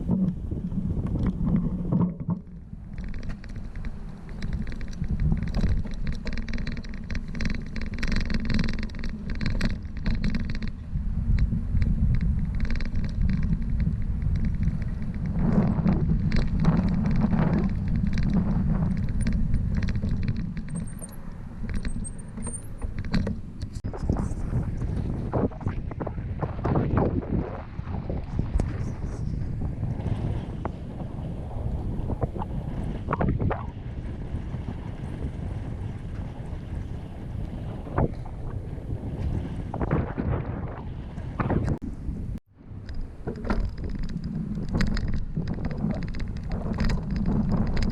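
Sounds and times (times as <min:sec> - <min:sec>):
bicycle rattling and clicking: 0:00.0 - 0:25.2, 0:42.7 - 0:47.9
wind rumble on microphone: 0:00.0 - 0:47.9
road noise: 0:02.2 - 0:26.6.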